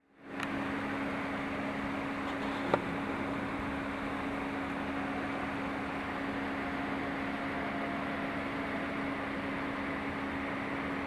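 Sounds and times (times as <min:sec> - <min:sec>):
mechanical hum: 0:00.1 - 0:11.0.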